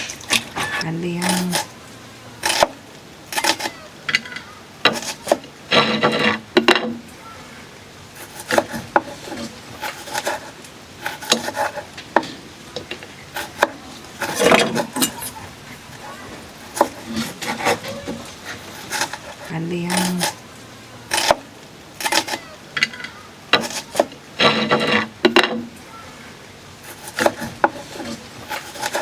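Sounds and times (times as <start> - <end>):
scraping and rubbing strokes: 0.0 - 1.7, 8.2 - 12.4, 13.0 - 20.4, 26.8 - 29.0.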